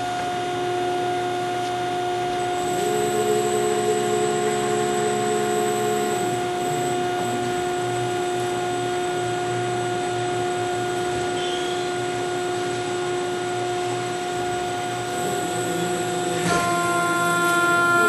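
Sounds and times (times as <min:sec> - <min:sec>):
mechanical hum: 0:00.0 - 0:18.0
roll bending machine whine: 0:00.0 - 0:18.0.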